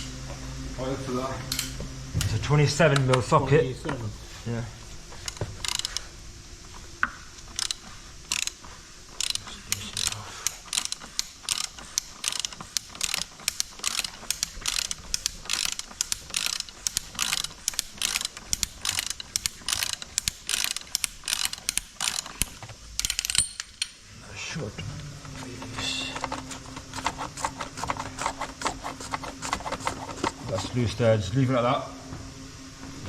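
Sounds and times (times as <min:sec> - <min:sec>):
ratchet clicking: 0:05.2 - 0:06.1, 0:07.0 - 0:24.0.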